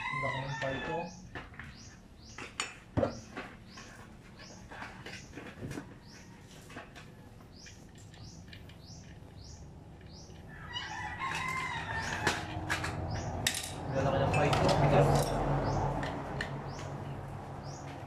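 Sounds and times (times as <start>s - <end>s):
bird chirping: 0.8s - 6.5s, 7.2s - 12.3s.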